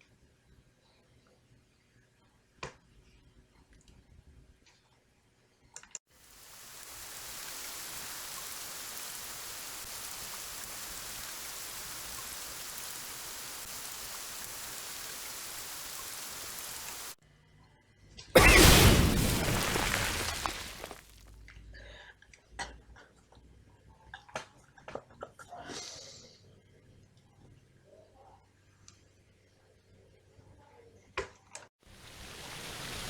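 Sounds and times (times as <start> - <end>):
rain falling: 6.2 - 17.2, 18.4 - 21.1, 31.9 - 33.0
loud sudden crash: 18.4 - 21.0.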